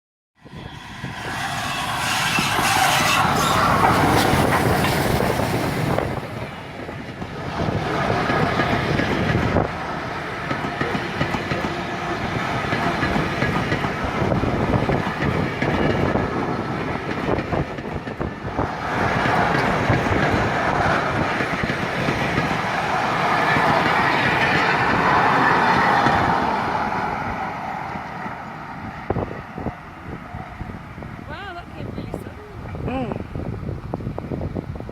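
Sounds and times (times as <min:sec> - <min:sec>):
train wheels clattering over rails: 0:01.0 - 0:28.4.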